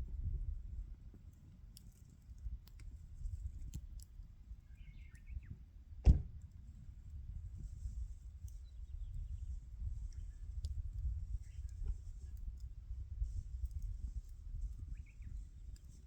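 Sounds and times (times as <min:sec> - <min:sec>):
fire crackles: 0:00.0 - 0:16.0
wood fire burning: 0:00.0 - 0:16.0
sharp loud pop: 0:06.0 - 0:06.3.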